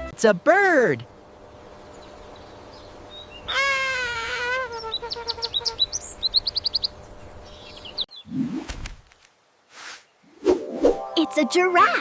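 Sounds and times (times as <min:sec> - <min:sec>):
bird calling and chirping: 0:01.5 - 0:08.6.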